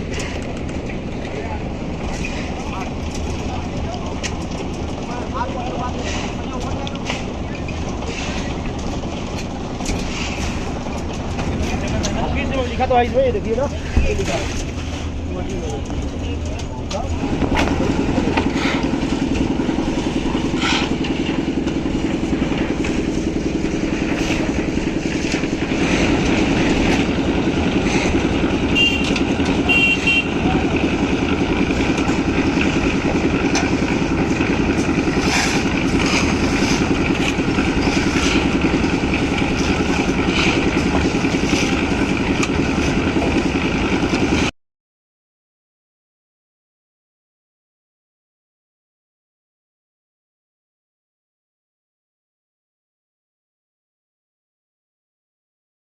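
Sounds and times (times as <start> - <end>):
construction machinery engine running: 0.0 - 44.5.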